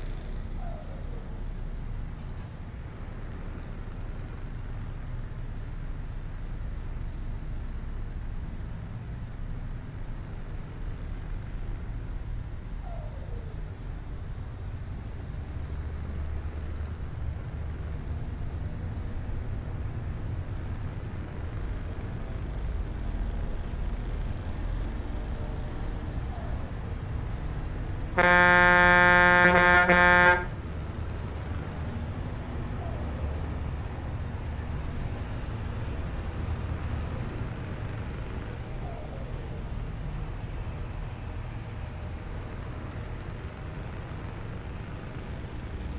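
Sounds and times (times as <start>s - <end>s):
truck engine droning: 0.0s - 45.9s
loud horn blast: 28.1s - 30.6s.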